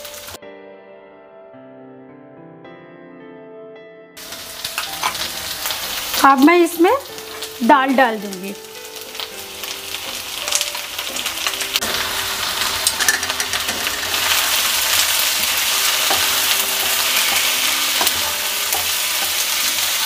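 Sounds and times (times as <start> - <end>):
frying sizzle: 0.0 - 0.4, 4.2 - 20.0
spatula scraping a pan: 11.8 - 20.0.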